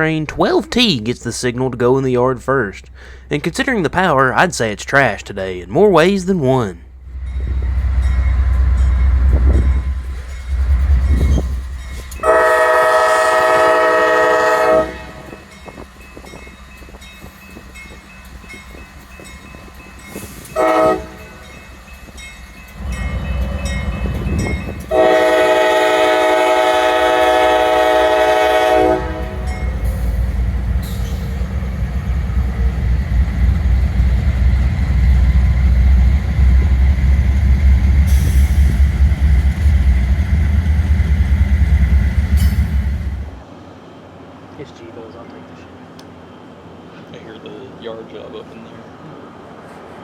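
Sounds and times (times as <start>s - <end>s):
locomotive engine rumble: 0.0s - 50.0s
train running noise: 0.0s - 50.0s
locomotive air horn: 12.2s - 15.4s, 20.5s - 21.4s, 24.9s - 29.6s.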